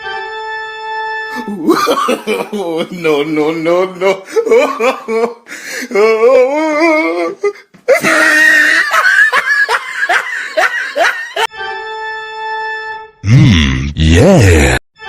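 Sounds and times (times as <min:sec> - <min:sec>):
loud pulsing laughter: 0:01.4 - 0:03.0, 0:07.9 - 0:11.5.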